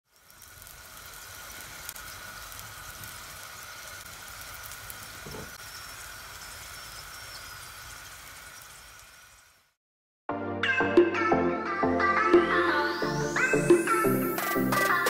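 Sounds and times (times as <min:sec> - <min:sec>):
food sizzling in a pan: 0:00.0 - 0:09.8, 0:12.7 - 0:15.0.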